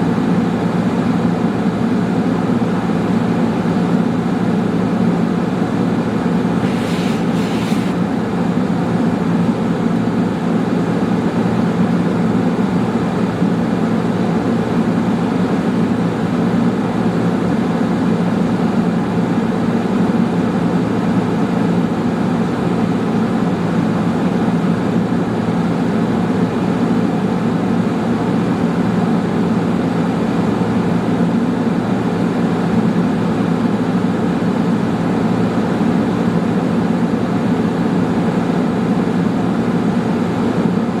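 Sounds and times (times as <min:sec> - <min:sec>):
low mechanical drone: 0:06.4 - 0:08.0.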